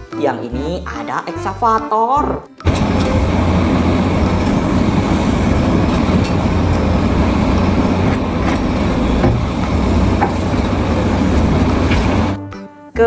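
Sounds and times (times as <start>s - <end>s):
excavator engine rumbling: 2.6s - 12.4s.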